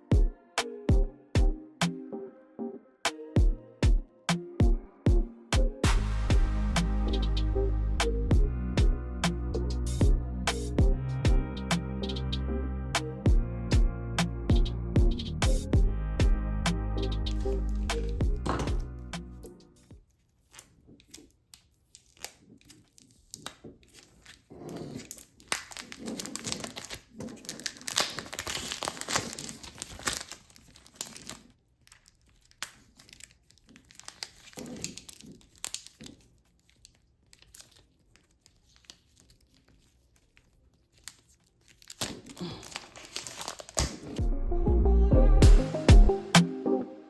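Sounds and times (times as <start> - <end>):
packaging crinkling and tearing: 19.8 - 44.2.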